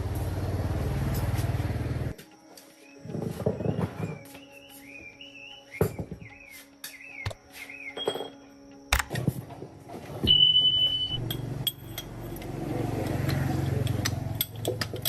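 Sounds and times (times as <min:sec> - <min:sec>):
engine running with pulsing hum: 0:00.0 - 0:02.2, 0:09.4 - 0:15.0
knocks and clicks: 0:13.1 - 0:15.0.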